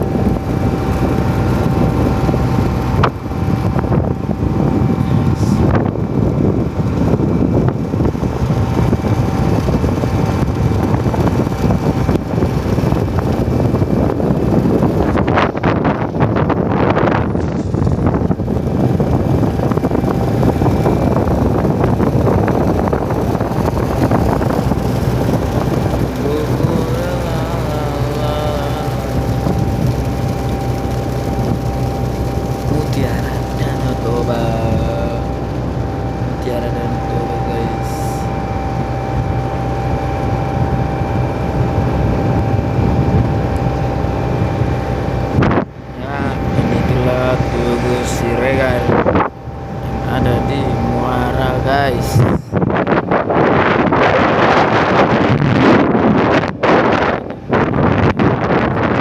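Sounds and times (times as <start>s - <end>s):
boat engine running: 0.0s - 59.0s
wind buffeting microphone: 0.0s - 59.0s
wavering pitched sound: 16.7s - 52.7s.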